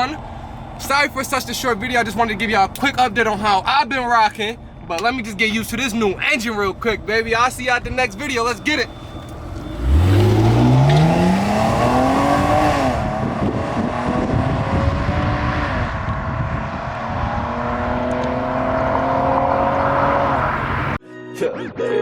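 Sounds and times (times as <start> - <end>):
car engine accelerating hard: 8.0 - 21.0.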